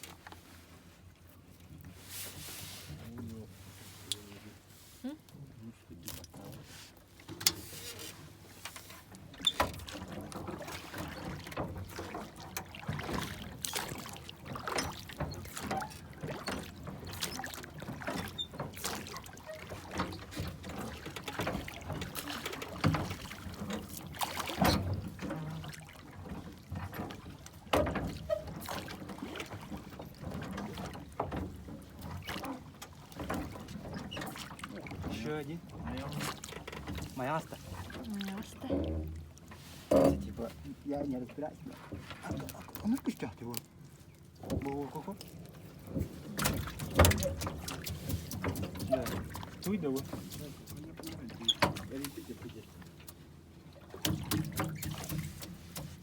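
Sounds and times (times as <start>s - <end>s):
water sloshing around boat: 0.0s - 56.0s
knocks and clunks: 39.9s - 40.8s, 45.9s - 52.2s.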